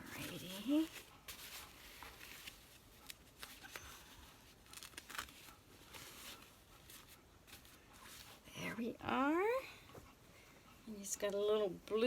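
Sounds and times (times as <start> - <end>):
fabric rustling: 0.0 - 8.5.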